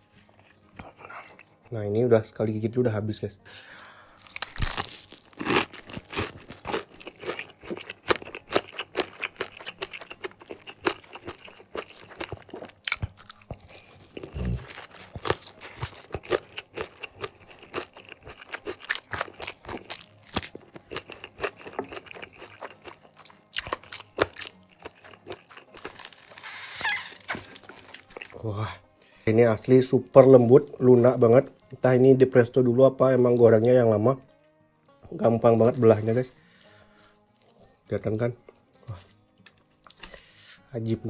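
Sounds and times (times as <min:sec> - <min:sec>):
crunching and wet chewing: 0:03.7 - 0:29.1, 0:34.9 - 0:37.6, 0:38.5 - 0:40.3
fried crust crackling apart: 0:03.8 - 0:28.4.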